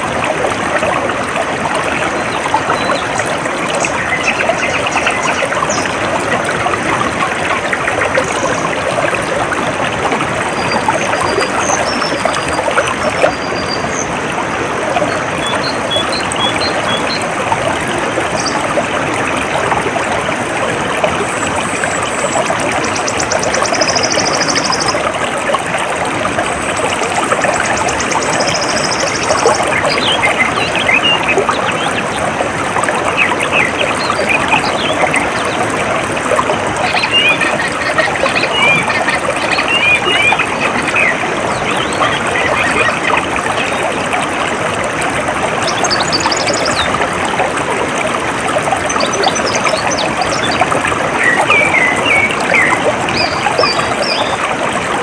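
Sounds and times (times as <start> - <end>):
stream trickling: 0.0 - 55.0
birds chirping: 21.3 - 25.0, 26.9 - 32.2, 36.6 - 44.0, 48.9 - 54.4.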